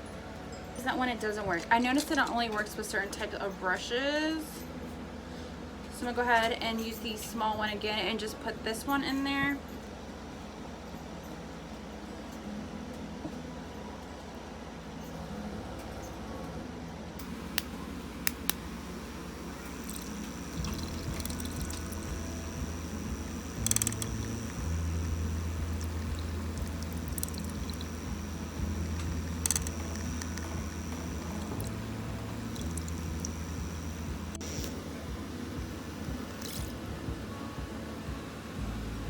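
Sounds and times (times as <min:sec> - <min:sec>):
motor hum with high whine: 0:00.0 - 0:39.0
sharp clicks: 0:19.6 - 0:31.8, 0:32.4 - 0:34.8.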